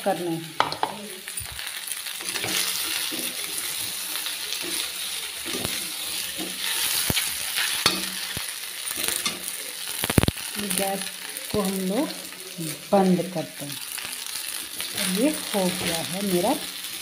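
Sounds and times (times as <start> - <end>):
rice sizzling in oil: 0.0 - 17.0
metal spatula knocking on pan: 0.6 - 1.0.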